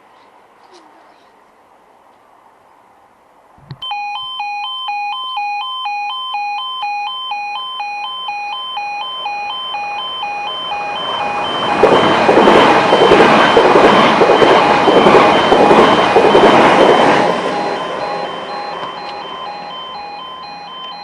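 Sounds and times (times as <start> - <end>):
level crossing two-tone alarm: 3.8 - 21.0
train rushing rumble: 10.0 - 21.0.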